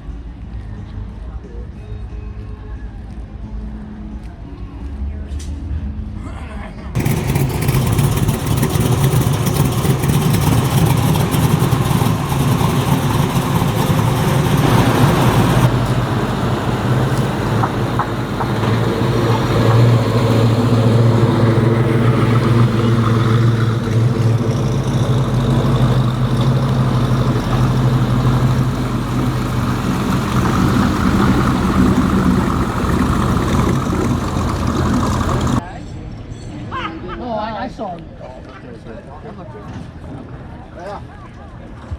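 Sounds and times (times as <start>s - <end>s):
car engine idling: 7.0s - 35.6s.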